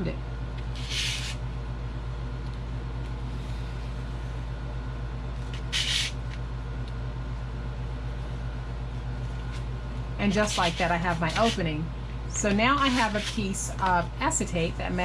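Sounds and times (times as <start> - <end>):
low electrical hum: 0.0 - 15.0
blade scratching chipboard: 0.8 - 1.4, 5.5 - 6.2, 10.3 - 11.6, 12.5 - 13.6
sharp blade scrape: 0.8 - 1.4, 5.5 - 6.2, 12.8 - 13.4.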